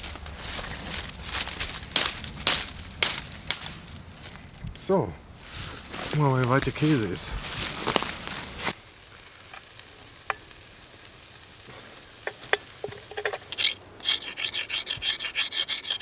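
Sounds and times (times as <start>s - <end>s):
fast rasping scrape: 13.4s - 16.0s.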